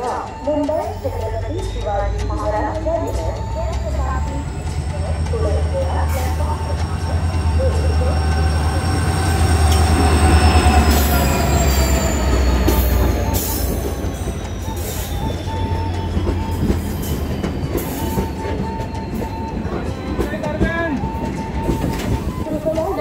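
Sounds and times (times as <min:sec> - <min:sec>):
locomotive hum and whine: 0:00.0 - 0:23.0
train wheels clicking over rail joints: 0:00.0 - 0:23.0
wheel squeal: 0:07.0 - 0:23.0.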